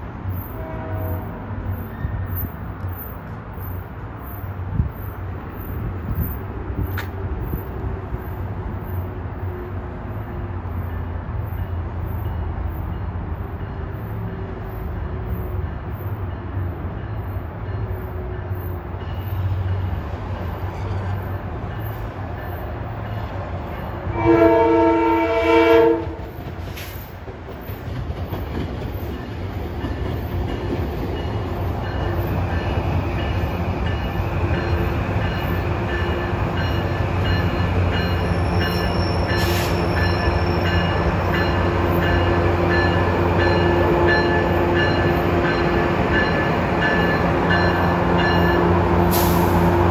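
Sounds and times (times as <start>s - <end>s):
electric train whine and rumble: 0.0s - 49.9s
train horn chord: 0.5s - 1.4s, 24.1s - 26.3s, 41.6s - 49.9s.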